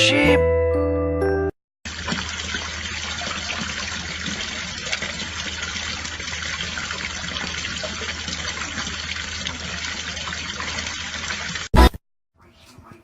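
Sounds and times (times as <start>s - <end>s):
water running from tap: 1.8s - 11.7s.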